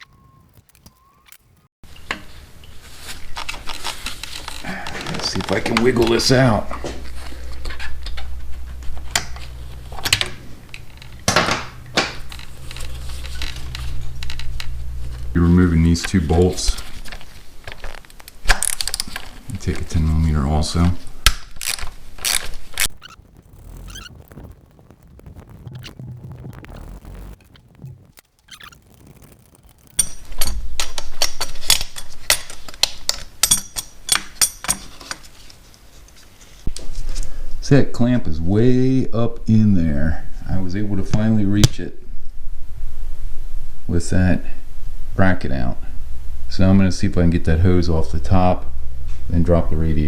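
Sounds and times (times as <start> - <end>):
metal scraping clatter: 27.5 - 32.6
metal tools clicking and clinking: 31.7 - 35.2.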